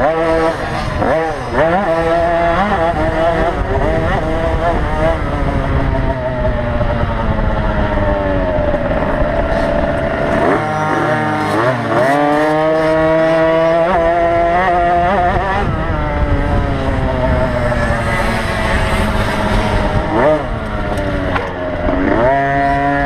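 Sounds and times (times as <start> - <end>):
two-stroke dirt bikes revving: 0.0 - 23.0.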